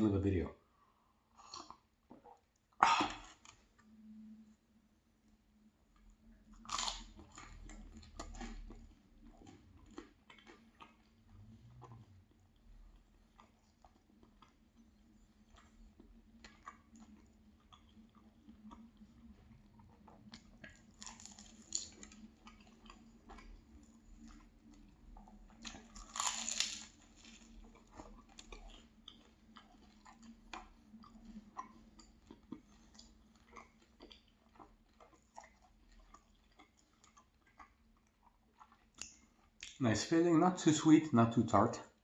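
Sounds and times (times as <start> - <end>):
chewing pastry: 0.6 - 4.6, 5.2 - 40.6
crunchy bites: 20.9 - 22.7, 25.6 - 28.8.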